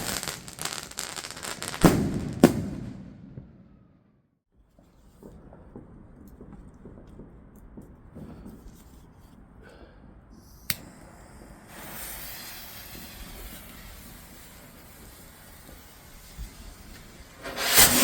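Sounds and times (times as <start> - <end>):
firework bang: 0.0 - 0.9, 1.6 - 4.1, 11.7 - 18.0
distant fireworks crackling: 0.0 - 4.0, 4.7 - 10.3, 10.9 - 18.0
rushing hiss: 10.8 - 18.0.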